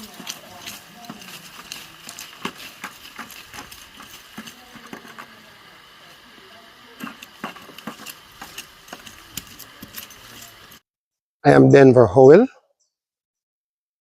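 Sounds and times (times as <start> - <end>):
faint voices: 0.0 - 10.8.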